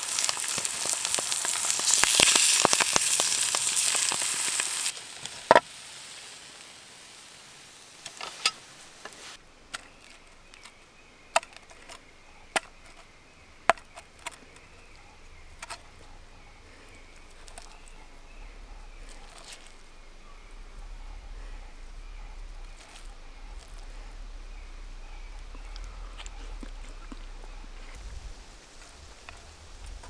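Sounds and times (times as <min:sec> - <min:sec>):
campfire popping and cracking: 0:00.0 - 0:05.8, 0:08.0 - 0:30.0.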